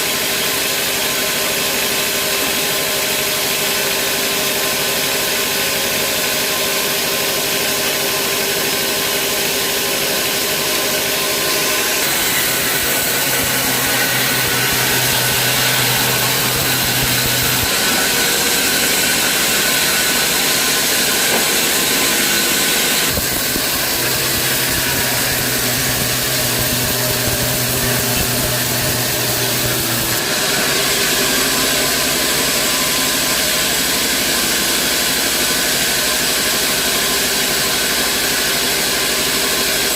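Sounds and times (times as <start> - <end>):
band saw machinery running: 0.0 - 39.9.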